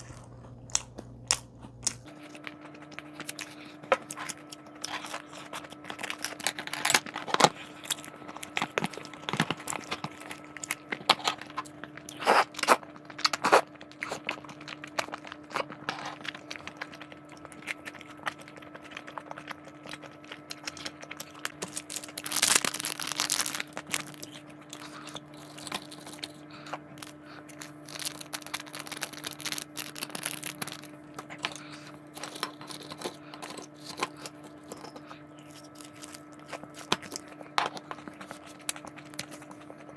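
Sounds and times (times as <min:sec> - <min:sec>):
plastic packaging crinkling: 0:00.0 - 0:39.9
steady low hum: 0:00.0 - 0:39.9
plastic packaging tearing: 0:04.1 - 0:16.3, 0:20.8 - 0:26.4, 0:27.0 - 0:31.5.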